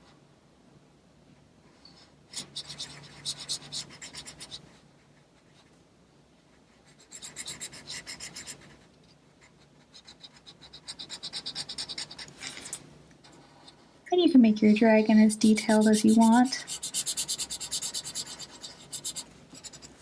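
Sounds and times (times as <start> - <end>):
scribbling on paper: 2.3 - 4.7, 6.7 - 8.8, 9.4 - 12.8, 15.3 - 20.0.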